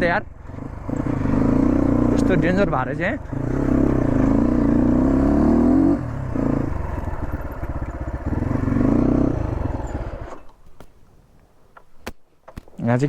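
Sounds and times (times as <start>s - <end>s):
motorcycle engine revving: 0.0s - 10.7s
rattling: 6.3s - 11.0s.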